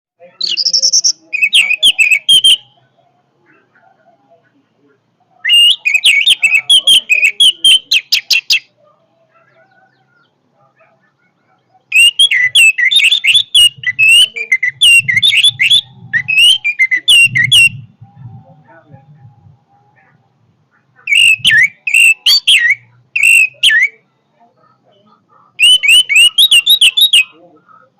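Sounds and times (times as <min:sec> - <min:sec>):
thrush singing whistled notes: 0:00.4 - 0:02.9, 0:05.3 - 0:08.7, 0:11.9 - 0:18.5, 0:21.0 - 0:24.1, 0:25.6 - 0:27.4.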